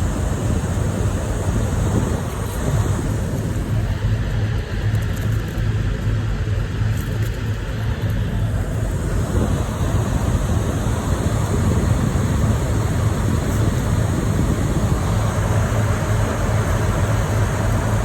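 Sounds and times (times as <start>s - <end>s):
truck diesel engine idling: 8.5s - 18.0s.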